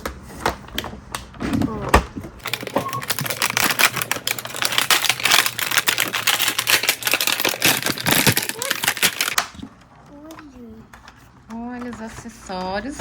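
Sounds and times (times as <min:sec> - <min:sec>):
plastic packaging crackling: 0:02.4 - 0:09.6.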